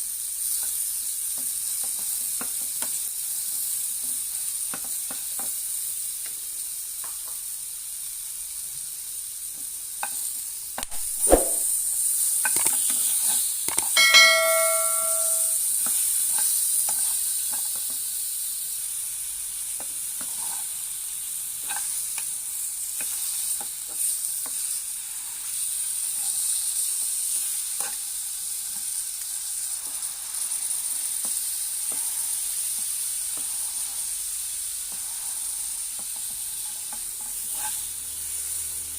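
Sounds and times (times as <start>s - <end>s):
ribs sizzling in a pan: 0.0s - 10.9s, 11.6s - 14.0s, 15.5s - 38.9s
metal clang: 14.0s - 15.6s.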